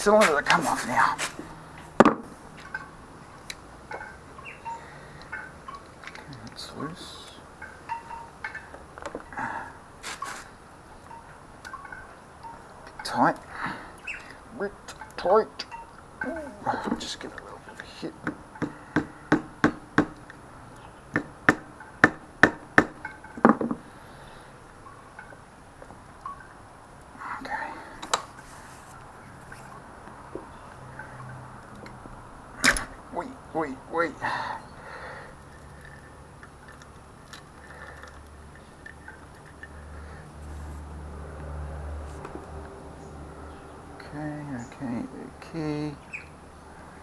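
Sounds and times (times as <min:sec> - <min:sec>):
hammer tapping on metal cylinder: 0:18.2 - 0:20.2, 0:21.1 - 0:23.8
metal engine parts clicking: 0:35.3 - 0:40.1.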